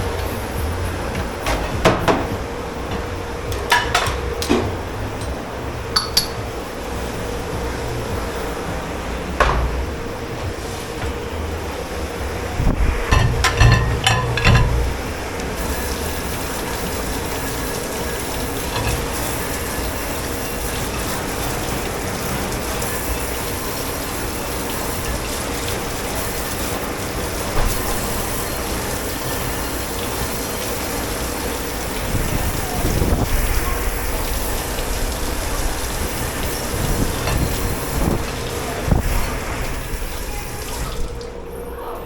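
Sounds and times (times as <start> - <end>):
water spraying: 0.0 - 41.5
crockery knocking: 13.0 - 15.1.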